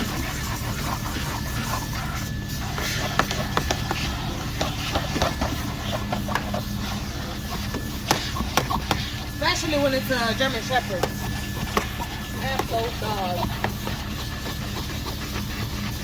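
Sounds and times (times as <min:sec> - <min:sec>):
vacuum cleaner running: 0:00.0 - 0:16.0
tool clicking against upholstery: 0:07.7 - 0:09.1.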